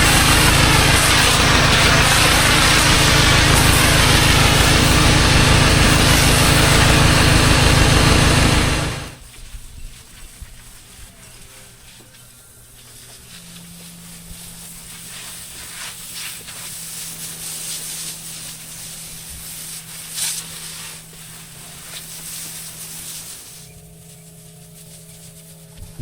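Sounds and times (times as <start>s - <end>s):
water gushing: 0.0s - 9.2s
steady low hum: 0.0s - 9.4s
water spray hissing on pavement: 0.0s - 26.0s.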